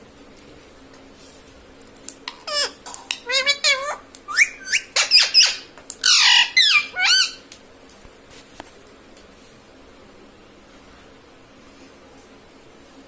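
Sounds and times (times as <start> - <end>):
parrot squawking: 2.2 - 7.5.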